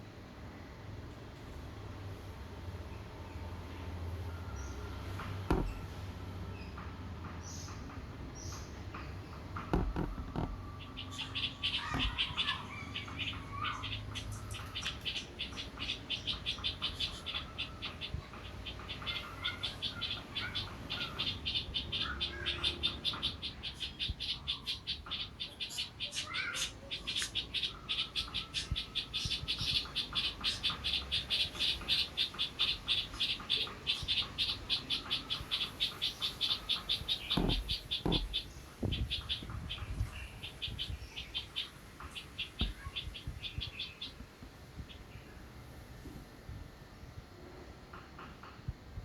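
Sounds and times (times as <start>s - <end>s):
knocks: 5.2s - 5.9s, 9.0s - 11.0s, 11.8s - 12.3s, 37.2s - 39.6s.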